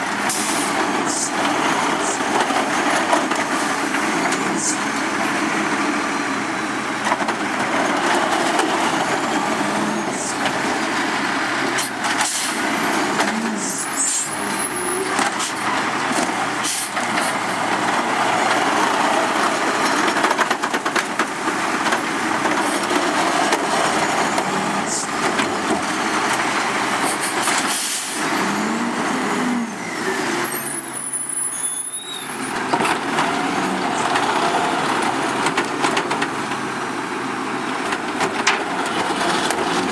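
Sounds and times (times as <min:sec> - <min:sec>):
diesel engine running: 0:00.0 - 0:39.9
air brakes hissing: 0:00.3 - 0:00.8, 0:11.8 - 0:12.7, 0:27.0 - 0:28.3.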